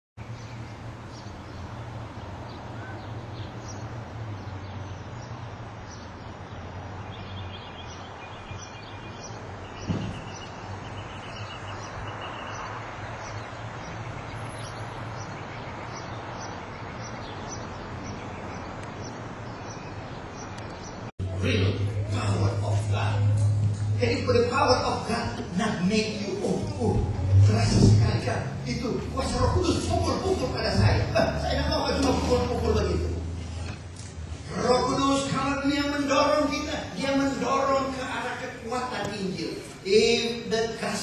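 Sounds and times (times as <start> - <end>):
small birds chirping: 0.2 - 41.0
bird trill: 2.5 - 22.5
single thump: 9.8 - 10.3
low rumble and hiss: 21.2 - 41.0.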